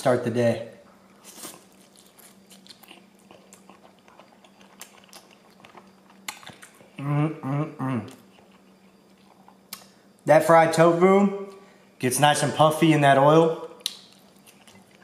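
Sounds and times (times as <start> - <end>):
person chewing noodles: 1.1 - 9.9, 13.8 - 15.0
closed-mouth hums: 2.3 - 10.0.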